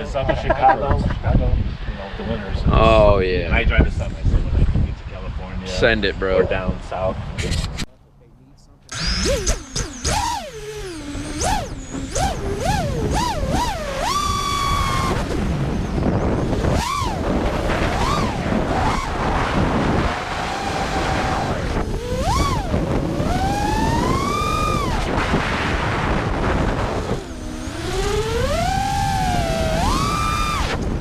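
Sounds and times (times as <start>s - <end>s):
wind noise on microphone: 0.0s - 7.9s, 8.9s - 31.0s
quadcopter motors whining: 8.9s - 31.0s.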